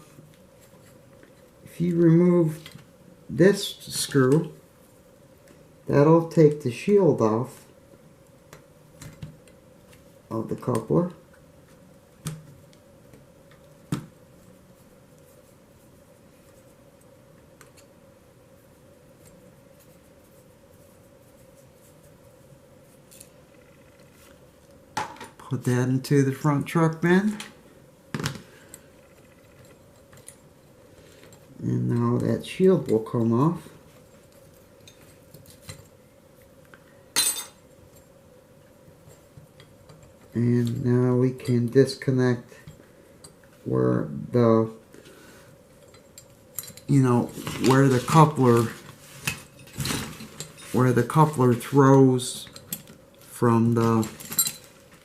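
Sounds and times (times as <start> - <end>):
faint steady hum: 0.0 - 55.0
small metal parts clinking: 53.8 - 54.8.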